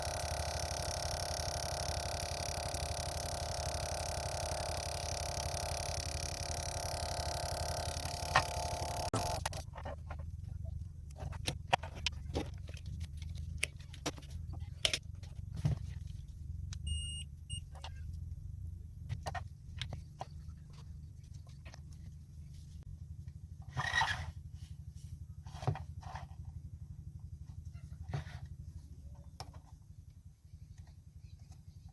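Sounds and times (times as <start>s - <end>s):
small parts clicking and tapping: 0.0s - 10.2s
steady low hum: 0.0s - 31.9s
short electronic beep: 16.9s - 17.6s.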